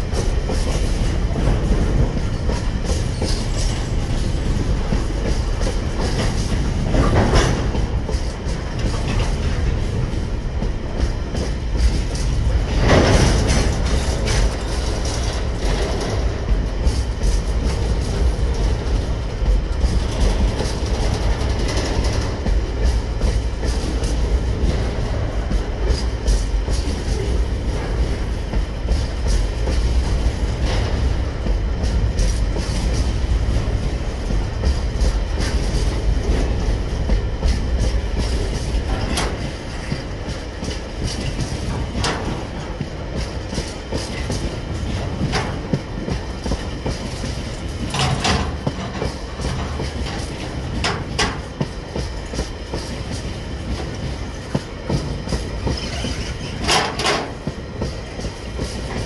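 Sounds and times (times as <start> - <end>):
wheels clattering over rail: 0.0 - 10.1, 11.8 - 19.1, 37.7 - 59.0
freight train wagons rolling: 0.0 - 59.0.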